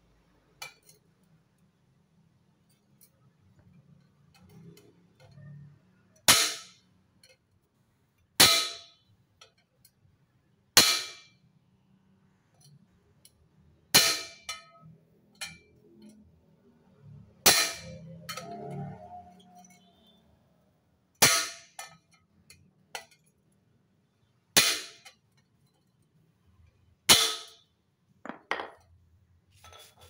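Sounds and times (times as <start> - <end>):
hammer striking metal muffler: 17.3 - 19.9, 21.2 - 22.0.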